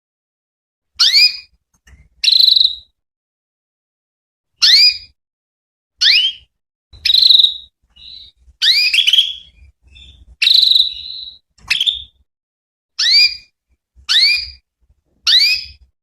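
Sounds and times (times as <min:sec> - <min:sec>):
canary chirping: 0:01.0 - 0:01.5, 0:02.1 - 0:02.9, 0:04.6 - 0:05.2, 0:06.0 - 0:12.2, 0:13.0 - 0:14.6, 0:15.2 - 0:15.9.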